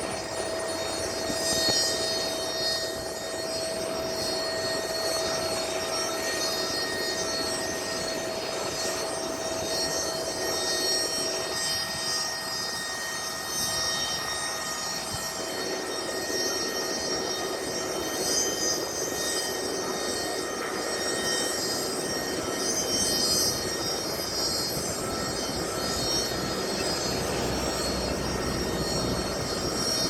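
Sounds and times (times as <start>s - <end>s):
aircraft engine running: 0.0s - 30.0s.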